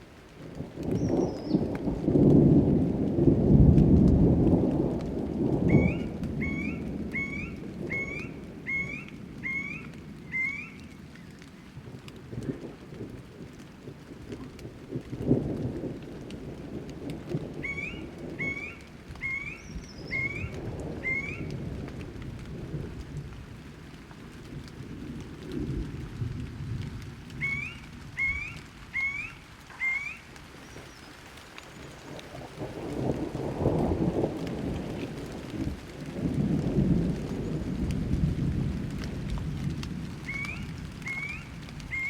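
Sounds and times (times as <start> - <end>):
steady rain: 0.0 - 42.0
thunder rumbling: 0.0 - 42.0
bird calling short rising notes: 5.7 - 10.9, 27.4 - 30.3.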